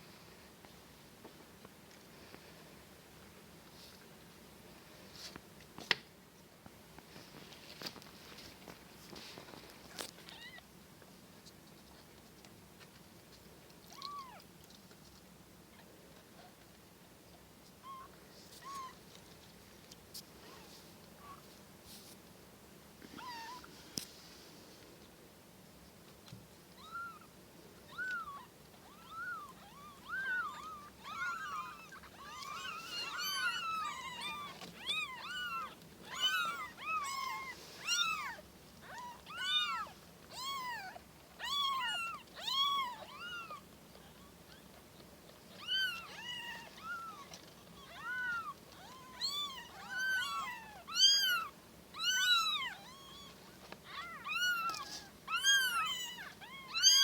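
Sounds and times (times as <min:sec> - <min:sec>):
kittens meowing: 0:26.8 - 0:27.3, 0:27.9 - 0:44.7, 0:45.5 - 0:57.0.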